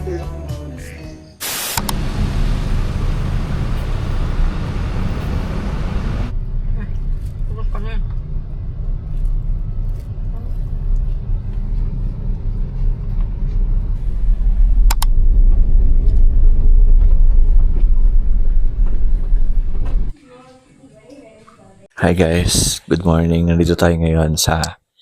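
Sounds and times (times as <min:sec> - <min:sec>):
road vehicle rumble: 0:01.4 - 0:20.2
sharp clicks: 0:14.8 - 0:15.1.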